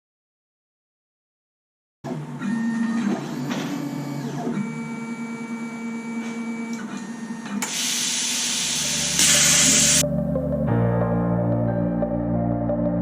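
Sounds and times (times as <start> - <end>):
machine mechanical whine: 2.1 - 10.0
plasma torch hissing: 7.6 - 10.0.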